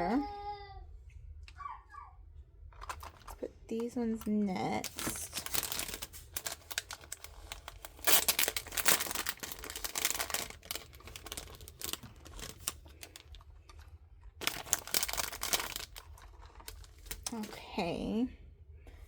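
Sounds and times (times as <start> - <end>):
plastic crinkling: 2.7 - 17.6.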